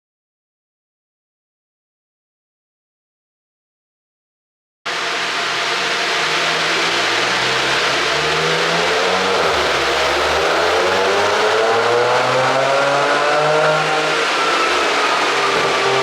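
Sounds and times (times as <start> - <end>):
car engine accelerating: 4.9 - 16.0.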